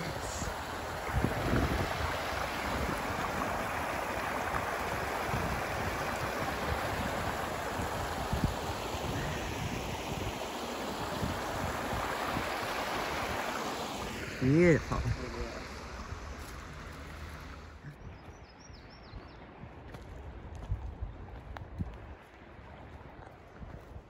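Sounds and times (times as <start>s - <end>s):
river water over falls: 0.0s - 17.8s.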